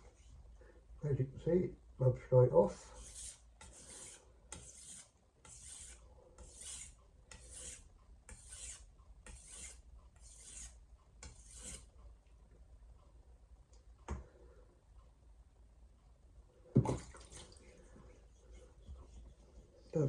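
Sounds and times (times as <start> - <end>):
knife blade scraping on whetstone: 2.8 - 11.9.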